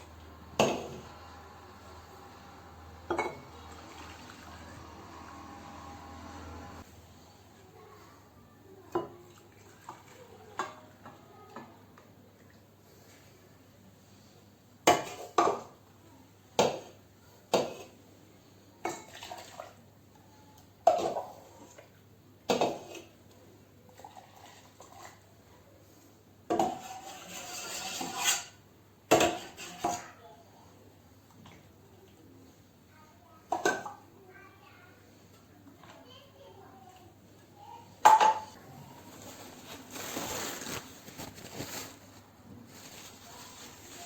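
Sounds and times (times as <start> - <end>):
dishes and utensils clinking: 3.1 - 4.9, 38.0 - 38.6.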